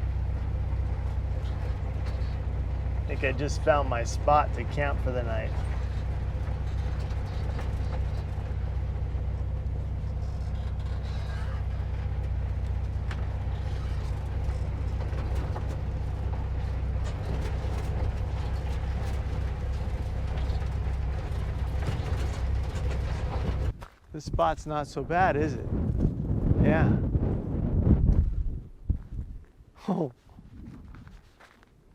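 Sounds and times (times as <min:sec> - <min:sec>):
knocks and rattles: 0:00.0 - 0:23.8
vehicle engine running: 0:00.0 - 0:29.1.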